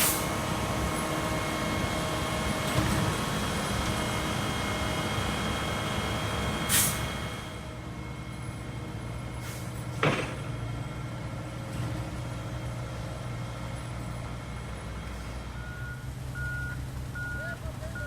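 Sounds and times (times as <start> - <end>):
loud air hiss: 0.0 - 0.3, 6.7 - 7.1
truck engine running: 0.0 - 18.0
reversing alarm beeping: 15.6 - 18.0.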